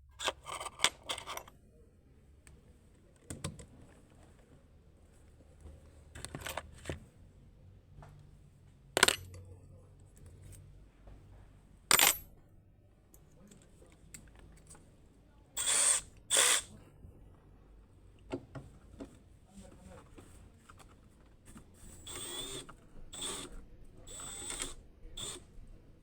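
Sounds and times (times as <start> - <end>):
power tool bursts: 15.6 - 16.7, 22.1 - 23.5, 24.1 - 25.4.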